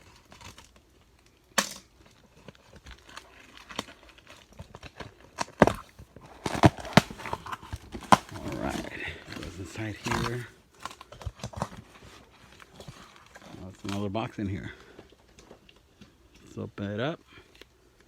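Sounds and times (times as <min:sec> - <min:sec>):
cardboard packaging crinkling: 0:00.0 - 0:14.4.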